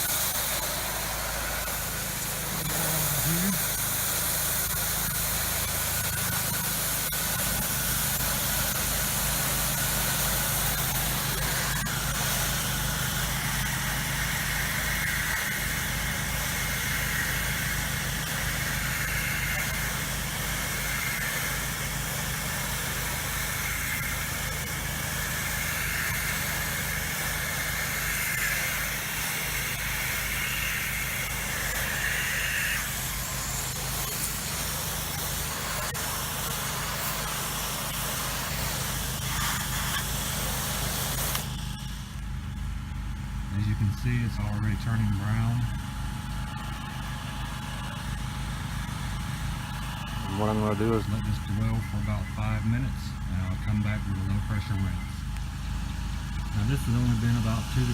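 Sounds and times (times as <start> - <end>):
spray hissing: 0.0 - 42.2
engine running: 0.0 - 57.9.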